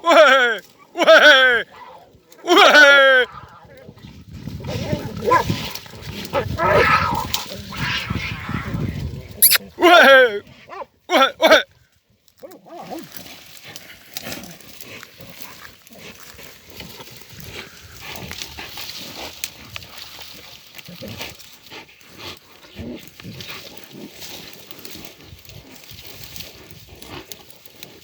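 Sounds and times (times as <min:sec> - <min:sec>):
dogs growling and snarling: 0:03.1 - 0:09.6, 0:12.5 - 0:28.0
animal calls: 0:06.4 - 0:09.6.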